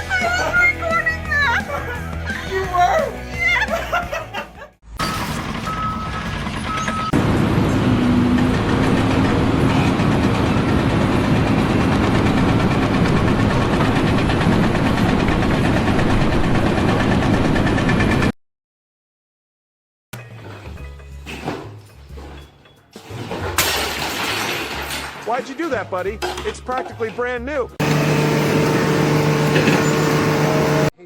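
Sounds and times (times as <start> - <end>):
short reversing alarm beeps: 5.0 - 7.2
heavy vehicle engine running: 5.0 - 18.3, 27.8 - 30.9.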